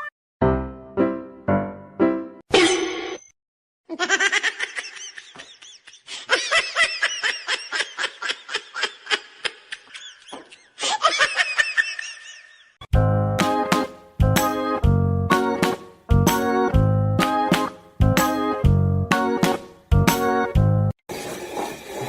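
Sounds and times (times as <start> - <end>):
person laughing: 3.9 - 12.7.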